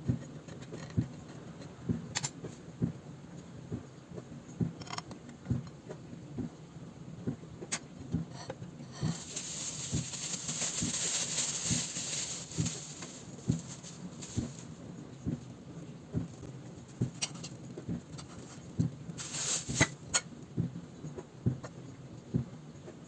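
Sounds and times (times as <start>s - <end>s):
steady hiss: 9.0s - 15.5s, 18.2s - 20.2s
soft low thumps: 9.3s - 17.2s, 20.5s - 20.8s.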